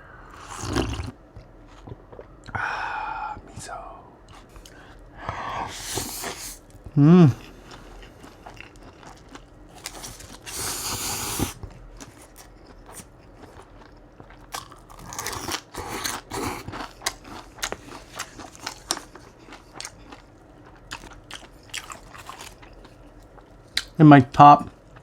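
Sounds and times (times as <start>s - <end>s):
slurping soup: 0.3s - 1.2s, 5.7s - 6.6s, 10.4s - 11.6s
chewing and biting: 7.4s - 10.5s, 11.6s - 24.0s.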